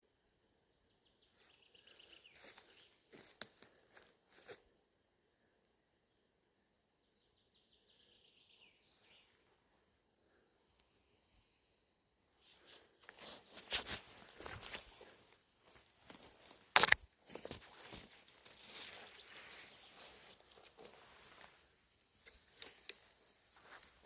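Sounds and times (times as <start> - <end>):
faint birdsong: 0.0 - 24.0
sharp clicks and crunches: 13.1 - 19.1, 20.3 - 21.5, 22.2 - 24.0.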